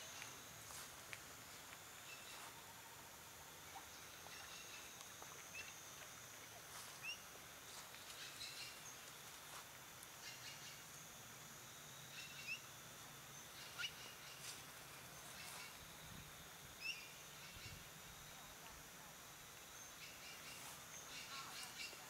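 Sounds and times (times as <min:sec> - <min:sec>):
faint rising bird chirps: 0:13.4 - 0:14.5.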